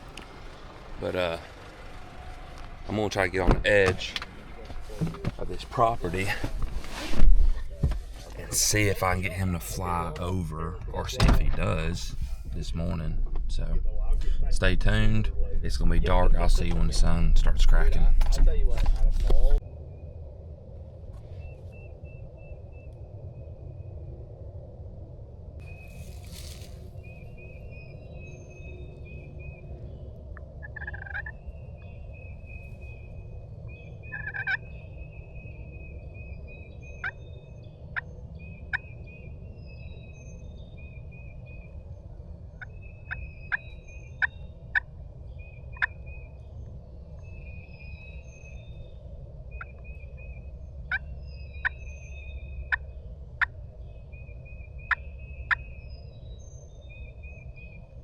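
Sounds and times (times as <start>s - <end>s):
distant wild turkey gobbling: 30.4s - 31.5s, 33.7s - 34.9s, 45.7s - 46.3s, 49.5s - 55.9s.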